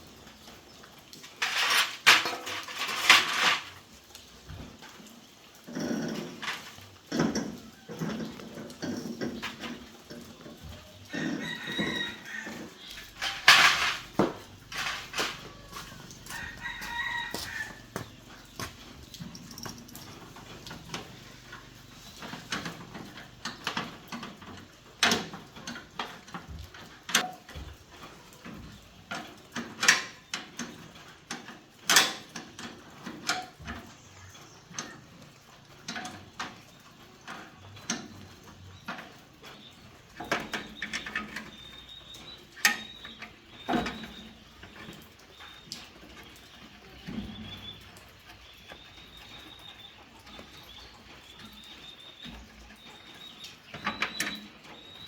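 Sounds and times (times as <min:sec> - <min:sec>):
rooster crowing: 0:11.1 - 0:12.8, 0:15.3 - 0:18.1.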